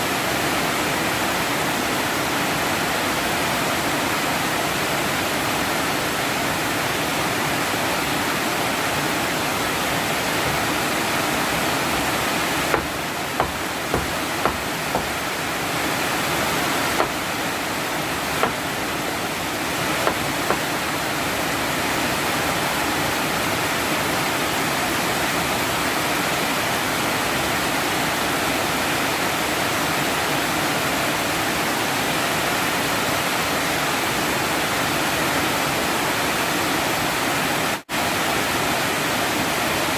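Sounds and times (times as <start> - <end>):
heavy rain pouring: 0.0 - 33.3
short sharp taps: 18.4 - 18.6.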